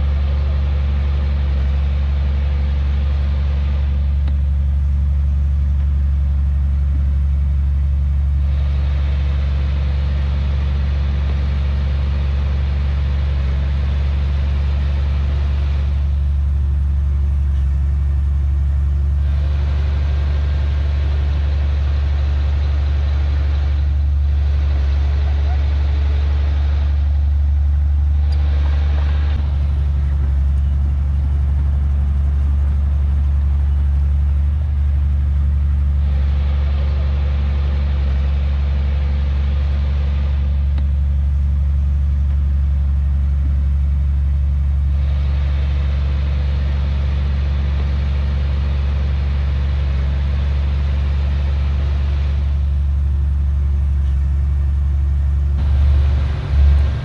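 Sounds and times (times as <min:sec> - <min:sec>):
heavy diesel engine humming: 0:00.0 - 0:57.0
rough high-pitched machine noise: 0:55.6 - 0:57.0.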